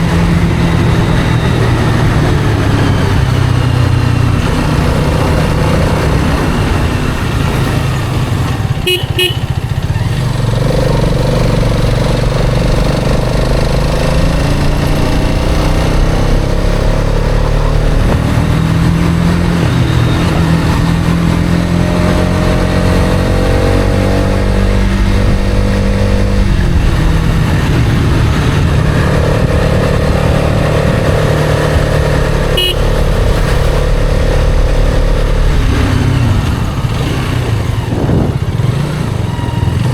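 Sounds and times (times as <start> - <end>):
motorcycle engine accelerating: 0.0 - 39.9
horn beeps: 8.6 - 9.8, 32.4 - 34.0
wind rumble on microphone: 10.5 - 39.9.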